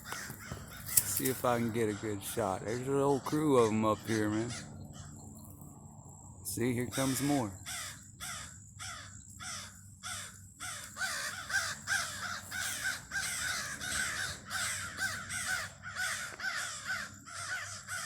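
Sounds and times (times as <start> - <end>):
crows cawing harshly: 0.0 - 5.2, 6.6 - 18.0.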